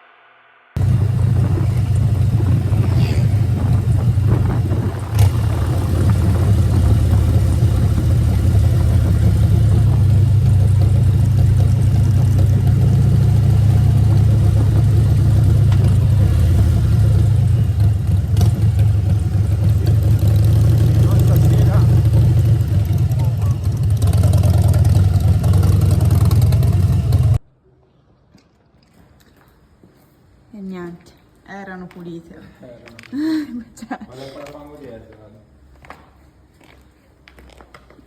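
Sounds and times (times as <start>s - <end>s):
motorcycle engine running: 0.8s - 27.4s.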